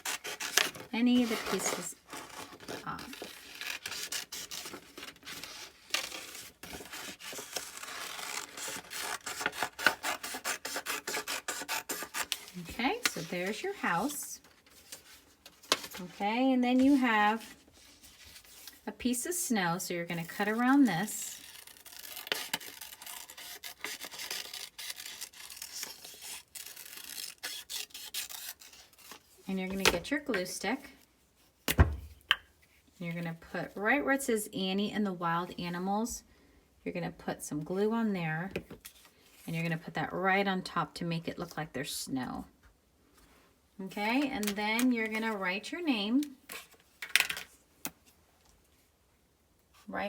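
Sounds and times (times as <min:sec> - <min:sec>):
scissors snipping paper: 0:02.6 - 0:14.0, 0:20.2 - 0:29.2.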